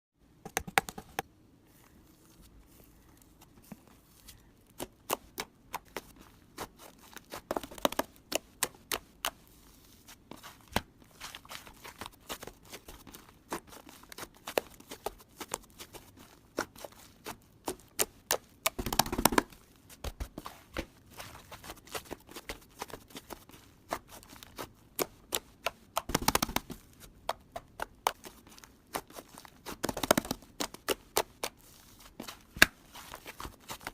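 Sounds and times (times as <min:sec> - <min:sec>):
sharp clicks and taps: 0:00.4 - 0:01.2.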